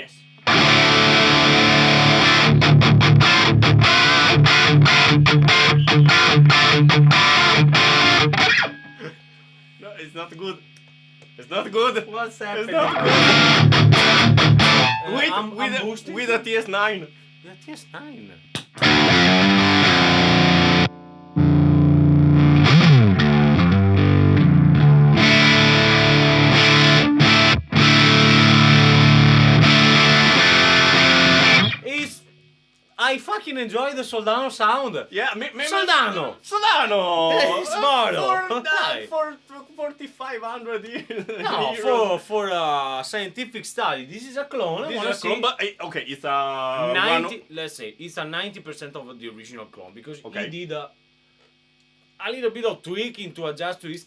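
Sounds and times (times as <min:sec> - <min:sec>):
distorted electric guitar riff: 0:00.0 - 0:09.3, 0:12.8 - 0:15.3, 0:18.4 - 0:32.2.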